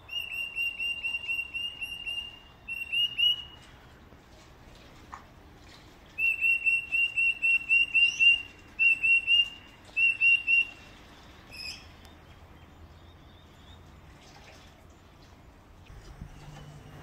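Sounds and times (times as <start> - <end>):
different bird call: 0.0 - 3.7, 6.2 - 10.8
bird chirping rapidly: 0.1 - 3.6, 6.2 - 10.8.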